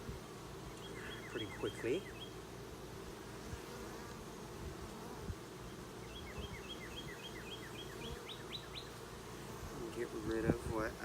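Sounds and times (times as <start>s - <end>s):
honeybees buzzing: 0.0s - 11.0s
small bird chirping: 0.7s - 2.4s, 6.0s - 9.0s.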